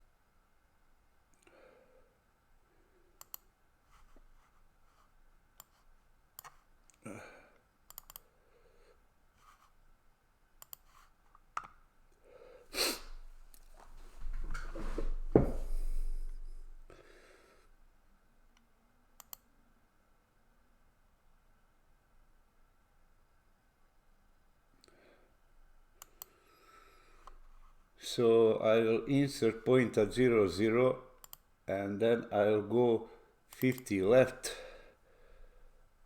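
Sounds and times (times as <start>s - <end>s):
computer mouse clicks: 3.2s - 3.5s, 5.6s - 7.0s, 7.9s - 8.3s, 10.6s - 11.8s, 19.2s - 19.5s, 26.0s - 26.4s, 31.2s - 31.5s, 33.5s - 33.9s
soft breathing: 12.2s - 17.8s, 26.1s - 27.8s, 34.5s - 35.9s.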